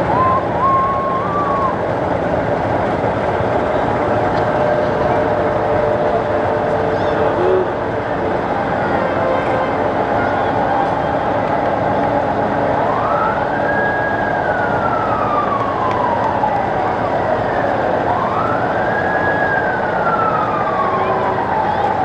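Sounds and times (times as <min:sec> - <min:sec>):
siren wailing: 0:00.0 - 0:07.6, 0:12.7 - 0:22.0
steady background noise: 0:00.0 - 0:22.0.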